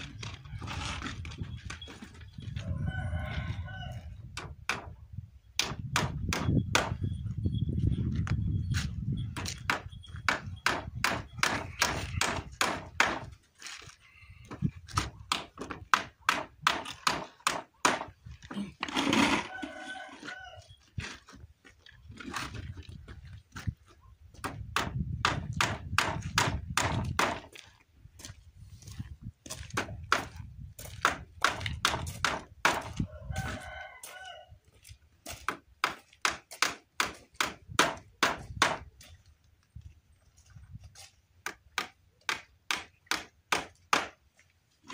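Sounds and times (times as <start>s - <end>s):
rooster crowing: 2.6s - 4.1s, 19.4s - 20.8s, 33.0s - 34.6s
hammer striking nails into wood: 5.6s - 7.0s, 9.4s - 13.3s, 15.0s - 18.1s, 24.4s - 27.4s, 31.0s - 33.0s, 35.5s - 38.8s, 41.5s - 44.2s.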